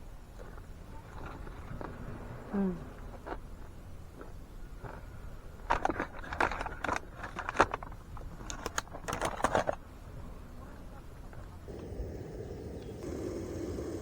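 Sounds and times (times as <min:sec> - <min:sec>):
light clicks and clatter: 0:03.1 - 0:09.9.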